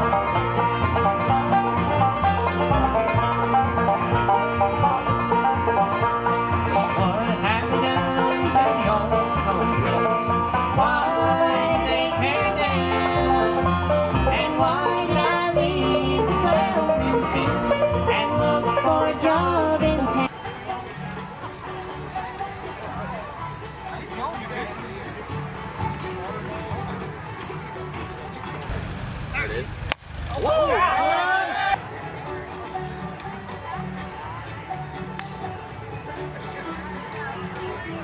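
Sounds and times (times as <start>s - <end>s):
bass line: 0.0s - 20.3s, 28.6s - 31.7s
banjo picking: 0.0s - 38.0s
guitar: 0.0s - 38.0s.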